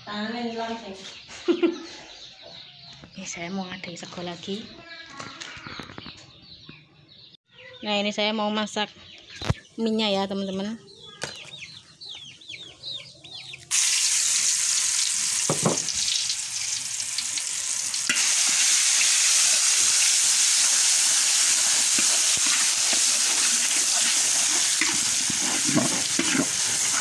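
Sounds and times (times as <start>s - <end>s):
spice paste sizzling in oil: 13.7s - 27.0s
metal spatula scraping: 20.7s - 27.0s.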